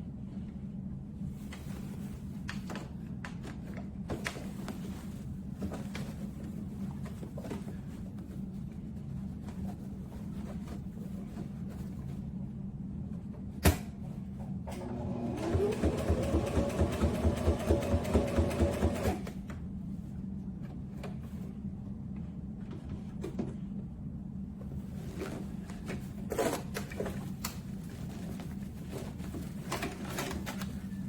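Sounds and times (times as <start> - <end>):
sewing machine motor whining: 14.8 - 19.2
sewing machine needle stitching: 15.4 - 19.2.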